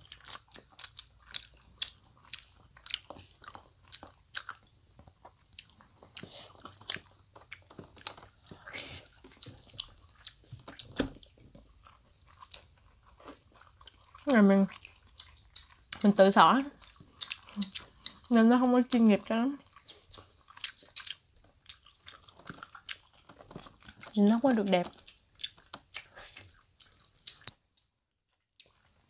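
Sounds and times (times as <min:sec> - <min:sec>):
chewing soft food: 0:00.0 - 0:29.0
wet mouth clicks and smacks: 0:24.9 - 0:27.6.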